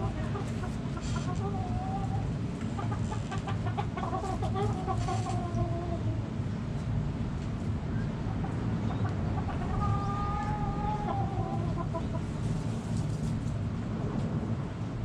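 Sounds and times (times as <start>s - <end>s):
chickens clucking: 0.0s - 6.9s, 8.0s - 13.4s
steady low rumble: 0.0s - 15.0s
drawn-out chicken call: 9.0s - 12.3s.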